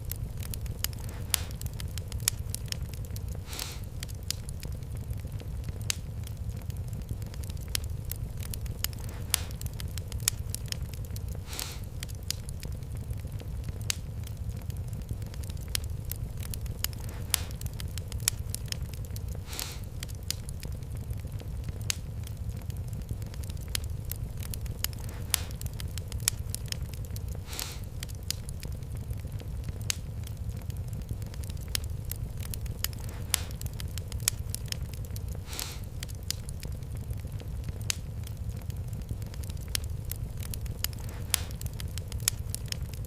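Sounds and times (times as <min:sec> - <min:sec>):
fire pops and snaps: 0:00.0 - 0:43.0
low rumble of flames: 0:00.0 - 0:43.0
short hiss: 0:03.5 - 0:03.9, 0:11.5 - 0:11.9, 0:19.5 - 0:19.9, 0:27.5 - 0:27.9.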